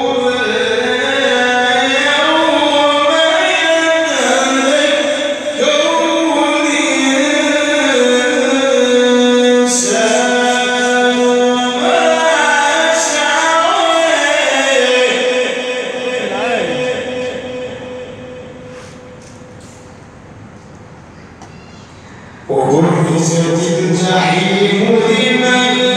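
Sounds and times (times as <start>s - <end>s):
man chanting melodic recitation: 0.0s - 19.9s, 22.4s - 25.9s.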